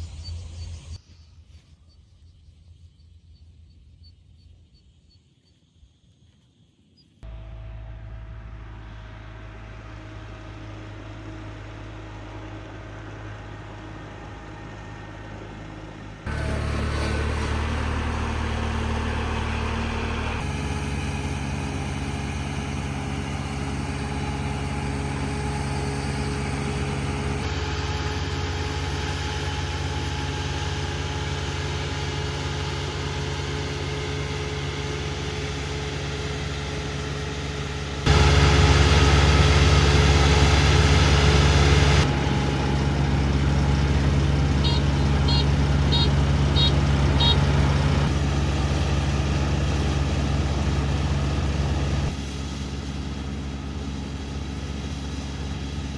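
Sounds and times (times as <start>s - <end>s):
farm machinery engine hum: 0.0s - 2.0s, 7.2s - 55.9s.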